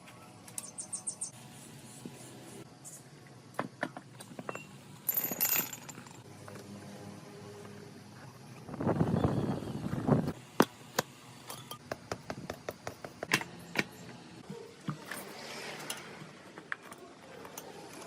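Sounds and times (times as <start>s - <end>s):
metal tools rattling: 4.5s - 6.2s.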